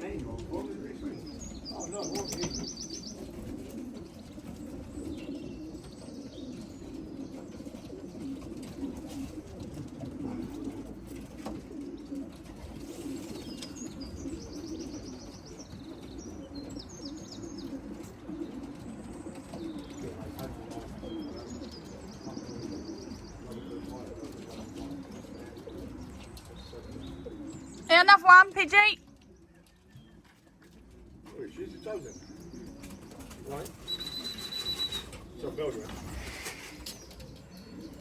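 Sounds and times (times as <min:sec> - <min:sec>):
pigeons cooing: 0:00.0 - 0:27.9, 0:29.1 - 0:38.0
high trilled bird chirps: 0:33.9 - 0:35.2.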